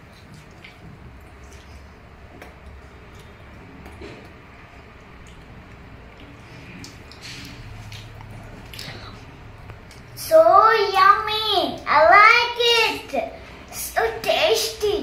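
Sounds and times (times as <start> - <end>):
children chewing: 0.0 - 10.2
low steady hum: 0.0 - 15.0.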